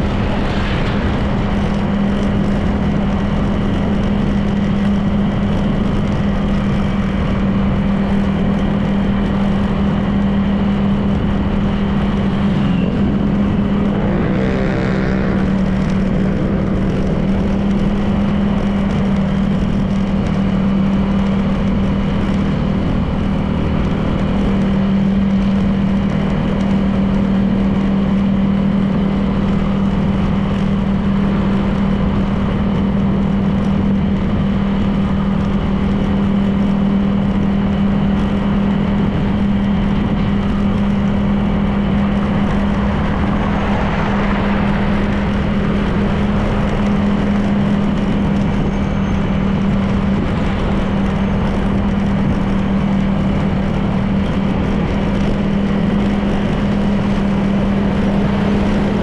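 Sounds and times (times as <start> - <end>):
pitch-bending passing sound: 0.0 - 3.4
road noise: 0.0 - 59.0
scooter engine hum: 0.0 - 59.0.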